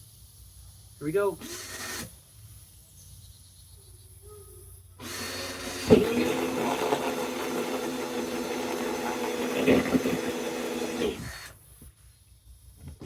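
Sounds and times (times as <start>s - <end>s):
power drill boring: 1.4s - 2.1s, 5.0s - 11.6s.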